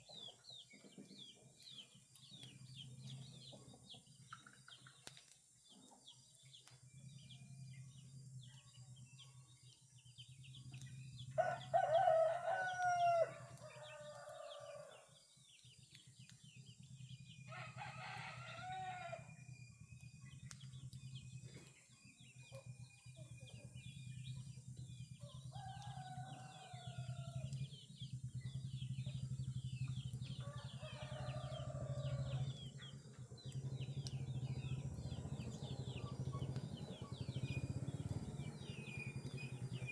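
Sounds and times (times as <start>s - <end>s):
small birds chirping: 0.0s - 39.9s
rooster crowing: 11.4s - 14.9s, 17.5s - 19.3s, 30.4s - 32.6s.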